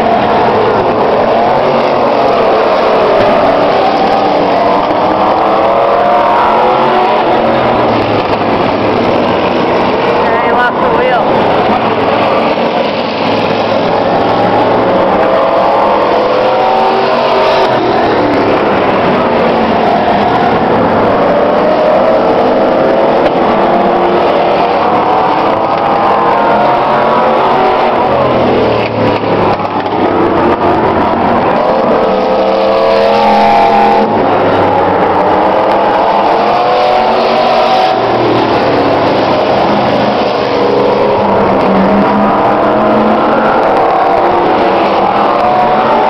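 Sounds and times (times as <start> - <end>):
race truck engines revving: 0.0 - 46.0.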